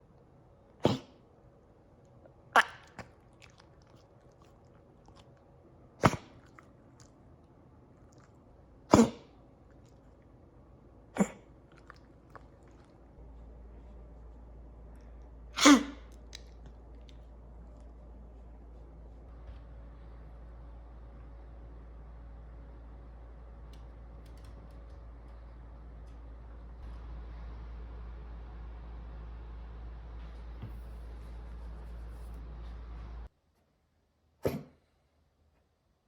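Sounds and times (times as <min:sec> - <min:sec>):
dog coughing: 0:00.8 - 0:01.2, 0:02.5 - 0:03.1, 0:06.0 - 0:06.6, 0:08.8 - 0:09.4, 0:11.1 - 0:12.0, 0:15.5 - 0:16.5, 0:34.4 - 0:34.8.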